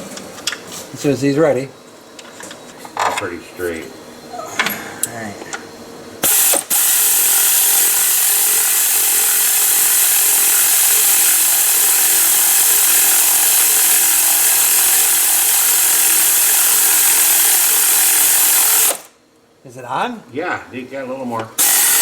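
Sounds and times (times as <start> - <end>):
power tool driving a bolt: 6.2 - 19.1, 21.6 - 22.0.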